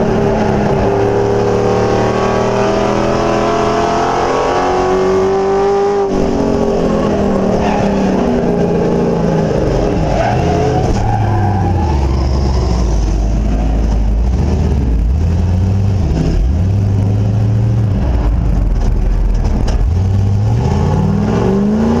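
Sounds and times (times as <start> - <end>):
loud truck engine revving: 0.0 - 22.0.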